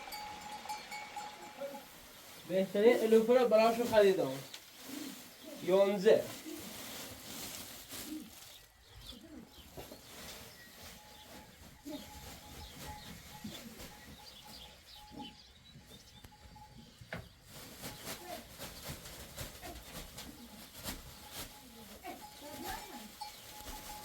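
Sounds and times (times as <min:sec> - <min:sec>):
bird cooing: 0:07.9 - 0:09.7
bird chirps: 0:08.3 - 0:18.1.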